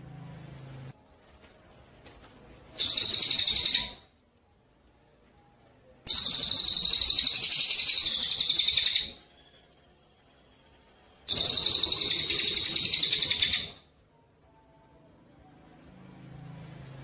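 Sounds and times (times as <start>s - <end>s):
faint steady high tone: 0.0s - 17.0s
songbird rattling trills: 1.0s - 4.0s, 6.1s - 10.6s, 11.2s - 13.8s.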